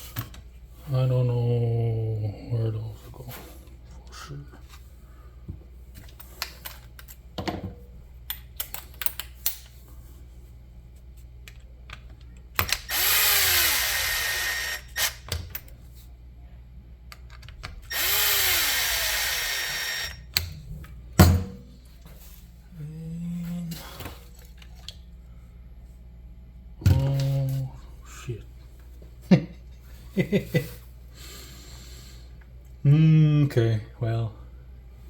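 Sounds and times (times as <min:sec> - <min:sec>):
power drill spinning: 0:12.7 - 0:15.3, 0:17.9 - 0:20.4.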